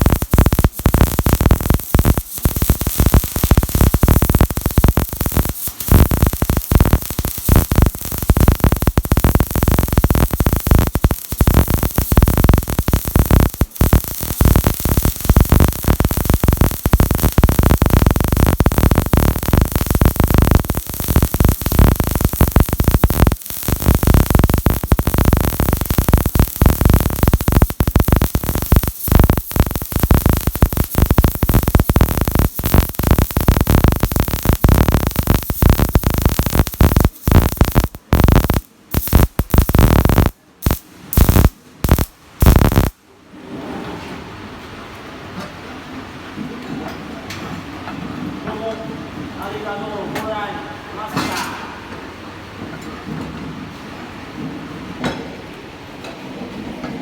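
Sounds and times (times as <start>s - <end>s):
welding arc crackling: 0.0s - 43.0s.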